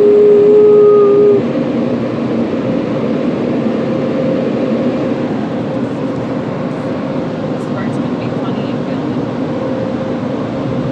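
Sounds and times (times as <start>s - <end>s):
dog howling: 0.0s - 1.6s.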